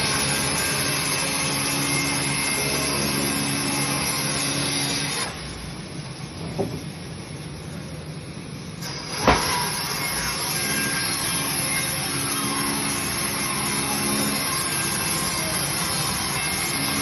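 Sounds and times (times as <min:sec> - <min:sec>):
bandsaw motor hum: 0:00.0 - 0:05.9, 0:08.8 - 0:17.0
sharp knock: 0:09.2 - 0:09.6.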